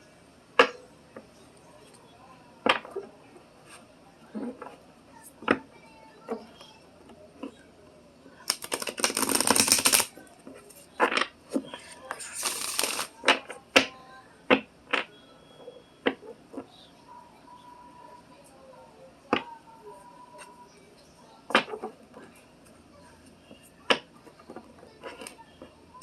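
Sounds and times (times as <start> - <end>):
card taps and clicks: 8.5 - 10.1, 12.4 - 13.1
cards shuffling: 8.5 - 10.1, 11.8 - 13.2.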